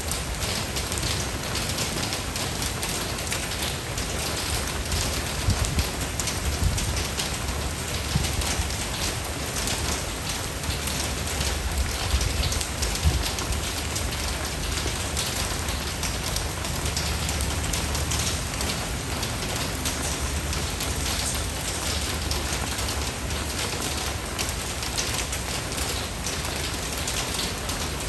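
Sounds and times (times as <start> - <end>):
raindrops ticking: 0.0 - 28.0
rain hissing: 3.8 - 25.0.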